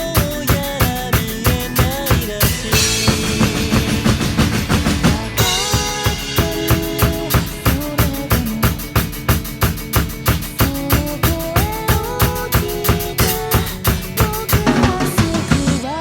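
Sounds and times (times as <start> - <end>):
backing track with guitar: 0.0 - 16.0
drum kit beat: 0.0 - 16.0
cymbal wash: 2.6 - 9.0.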